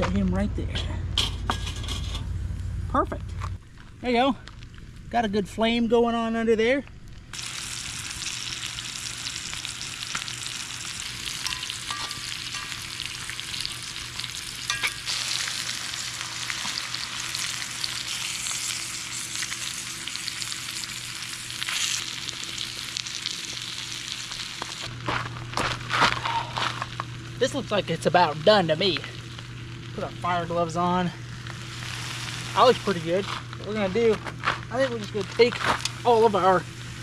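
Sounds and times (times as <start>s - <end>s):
fish sizzling in oil: 7.3s - 25.1s, 26.8s - 33.8s.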